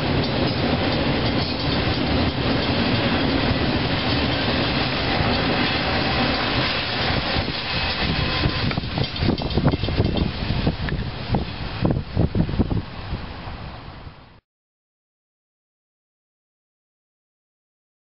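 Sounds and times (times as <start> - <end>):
wheels clacking over rail joints: 0.0 - 11.9
freight train rumbling past: 0.0 - 14.4.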